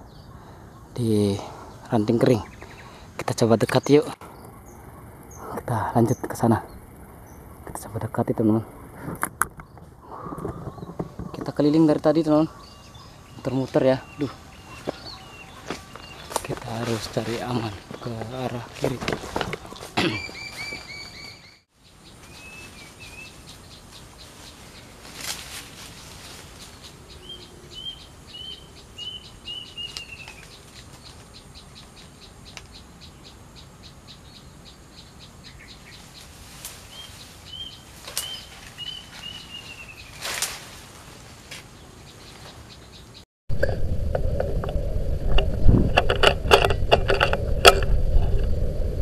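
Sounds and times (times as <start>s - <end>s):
rustles in grass: 12.6s - 27.5s, 35.6s - 42.8s
bird whistling calls: 20.0s - 21.6s.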